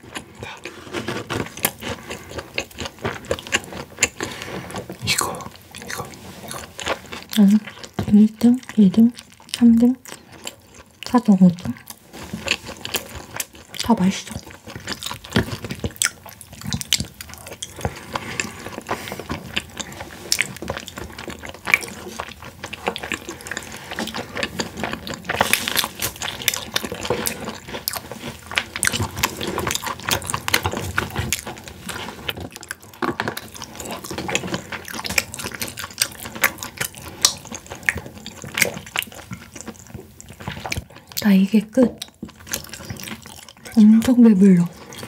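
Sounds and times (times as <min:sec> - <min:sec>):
people chewing with wet mouth sounds: 0:00.0 - 0:45.0.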